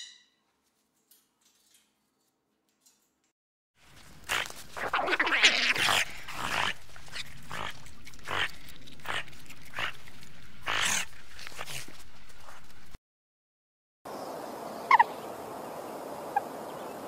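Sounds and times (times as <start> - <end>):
otters squealing: 4.2 - 12.7.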